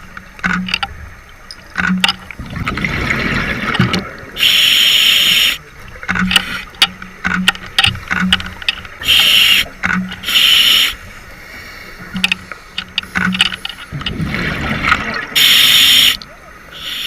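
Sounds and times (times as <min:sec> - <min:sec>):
exhaled bubbles rushing: 0:02.4 - 0:04.4, 0:13.9 - 0:15.4
diver inhaling through regulator: 0:04.4 - 0:05.6, 0:09.0 - 0:12.0, 0:15.4 - 0:16.2.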